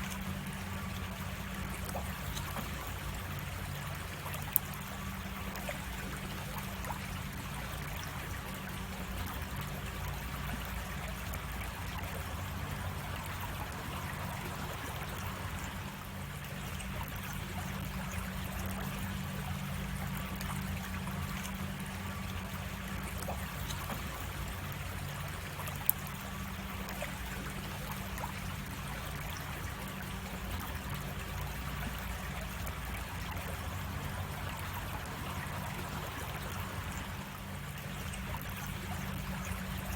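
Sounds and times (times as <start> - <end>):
creek water trickling: 0.0 - 39.9.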